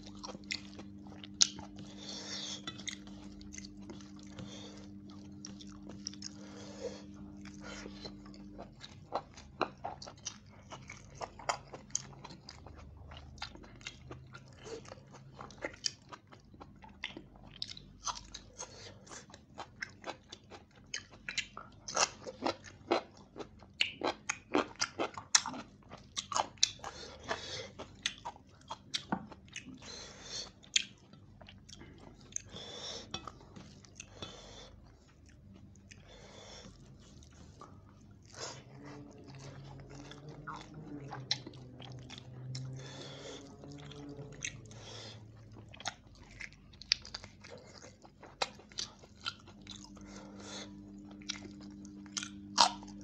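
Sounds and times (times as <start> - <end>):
low hum: 0.0 - 9.5, 33.1 - 53.0
chewing and lip-smacking: 0.0 - 53.0.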